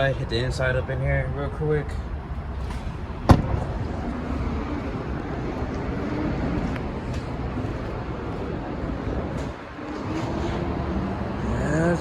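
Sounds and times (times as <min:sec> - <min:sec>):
sharp bang: 0:03.2 - 0:03.8.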